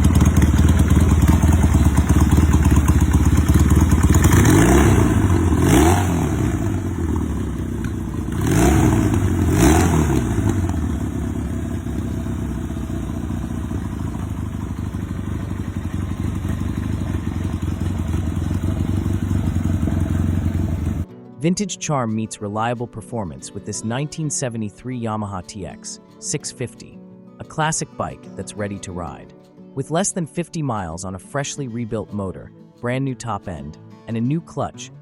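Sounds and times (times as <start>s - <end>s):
motorcycle engine idling and revving: 0.0s - 21.1s.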